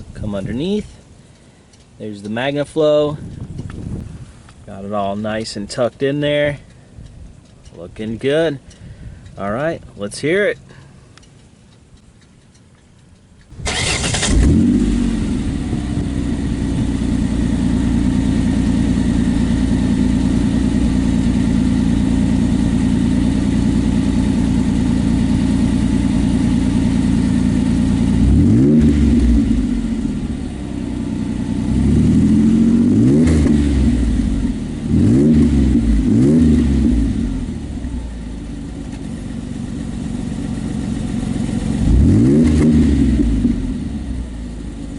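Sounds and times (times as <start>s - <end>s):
car engine idling: 0.0s - 44.9s
car engine starting: 0.0s - 44.9s
engine revving: 13.5s - 38.3s, 41.1s - 44.5s.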